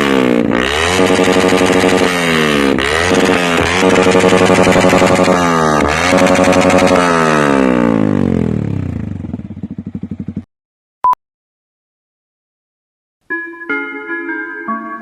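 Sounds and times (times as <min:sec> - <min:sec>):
motorcycle engine revving: 0:00.0 - 0:10.5.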